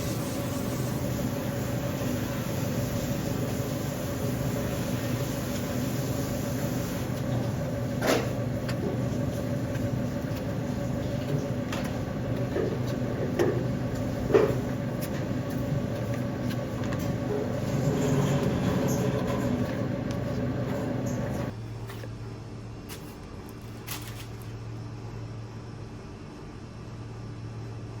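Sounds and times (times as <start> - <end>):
machine hum: 0.0 - 21.6.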